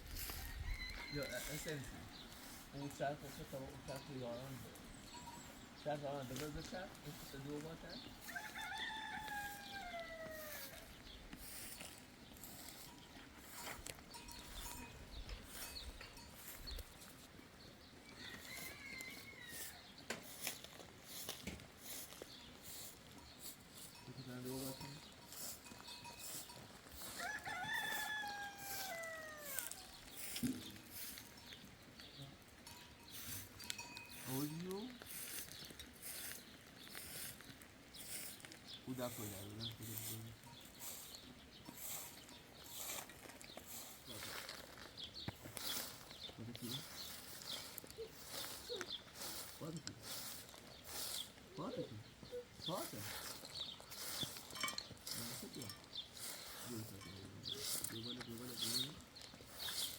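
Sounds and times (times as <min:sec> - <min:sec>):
steady outdoor hiss: 0:00.0 - 0:59.9
rooster crowing: 0:00.2 - 0:01.9, 0:08.2 - 0:10.9, 0:18.0 - 0:19.9, 0:27.1 - 0:30.0
high animal call: 0:08.2 - 0:11.0, 0:25.3 - 0:31.4.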